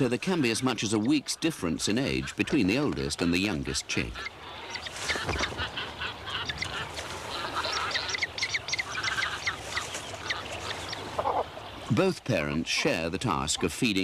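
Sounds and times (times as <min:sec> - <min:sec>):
waterbirds calling: 0:00.0 - 0:14.0.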